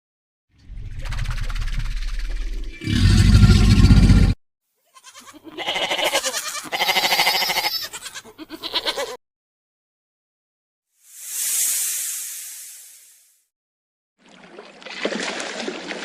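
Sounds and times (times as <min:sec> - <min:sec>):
farm animal bleating: 0:04.8 - 0:09.2.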